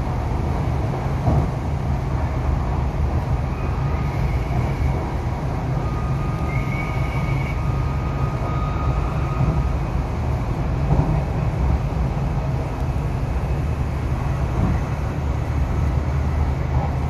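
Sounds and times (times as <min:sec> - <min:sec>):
low rumble of train wheels on track: 0:00.0 - 0:17.0
faint high whines: 0:03.3 - 0:10.0.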